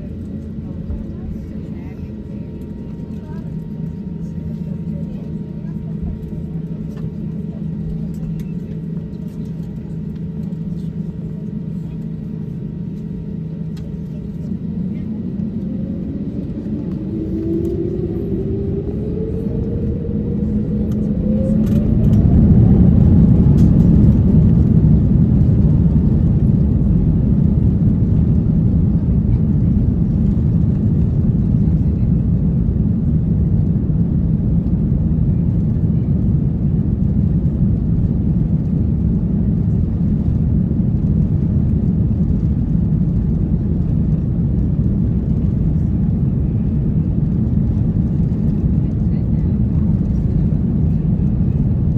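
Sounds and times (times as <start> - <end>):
loud steady engine rumble: 0.0 - 51.9
jet engines spooling up: 14.6 - 28.8.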